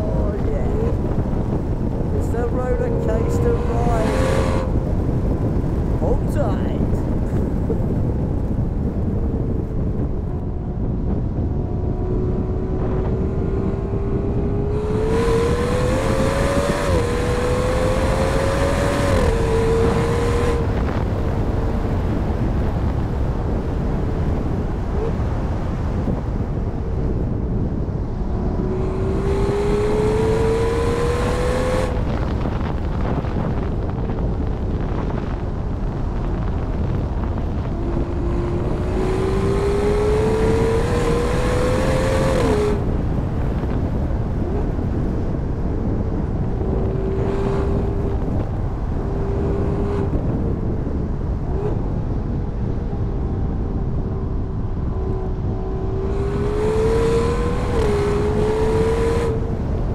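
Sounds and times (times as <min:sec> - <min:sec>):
car engine revving through upshifts: 0:00.0 - 0:06.4, 0:11.3 - 0:22.0, 0:28.0 - 0:32.4, 0:37.4 - 0:43.1, 0:46.4 - 0:50.7, 0:52.9 - 0:59.9
road and wind rumble: 0:00.0 - 0:59.9.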